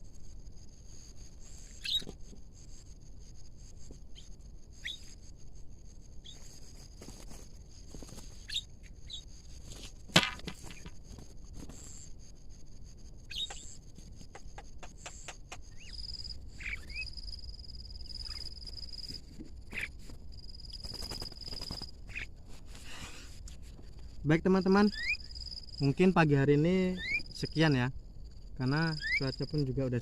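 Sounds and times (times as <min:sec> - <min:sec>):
birds chirping: 0:01.4 - 0:02.2, 0:08.3 - 0:09.4, 0:13.2 - 0:23.3, 0:24.3 - 0:27.8.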